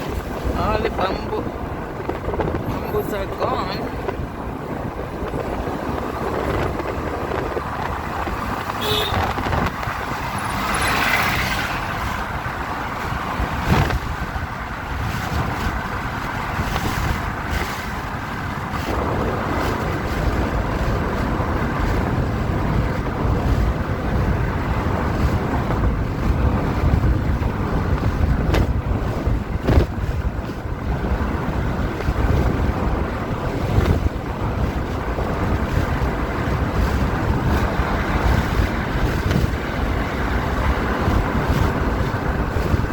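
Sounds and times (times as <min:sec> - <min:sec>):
vehicle rumble: 0:00.0 - 0:42.9
wind buffeting microphone: 0:00.0 - 0:42.9.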